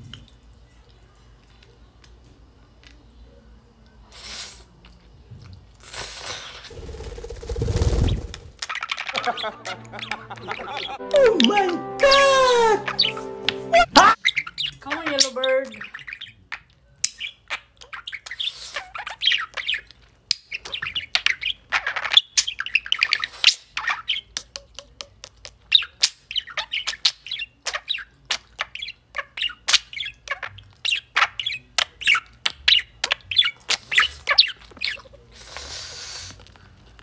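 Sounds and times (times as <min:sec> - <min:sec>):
bird chirping and squawking: 0:06.7 - 0:11.0, 0:12.0 - 0:24.4, 0:25.7 - 0:35.2.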